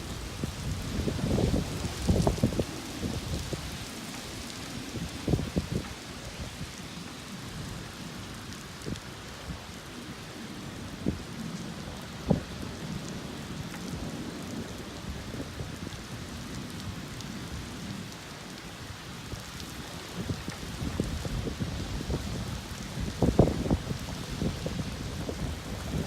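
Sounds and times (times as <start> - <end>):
low thunder rumbling: 0.0 - 3.9, 19.4 - 26.0
raindrops tapping nearby: 0.0 - 9.6, 11.0 - 26.0
steady rain: 0.0 - 26.0.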